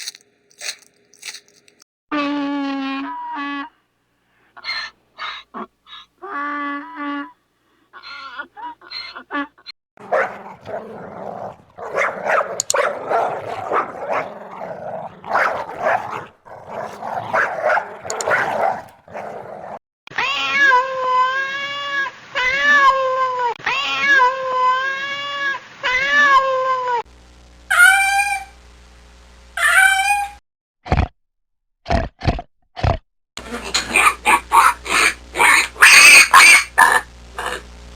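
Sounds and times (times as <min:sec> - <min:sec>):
cats meowing and yowling: 0:20.1 - 0:27.0, 0:29.6 - 0:30.3, 0:35.0 - 0:37.0.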